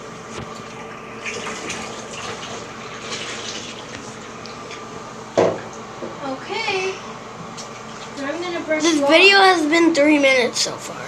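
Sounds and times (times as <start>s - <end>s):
water running into bathtub: 1.2s - 4.8s.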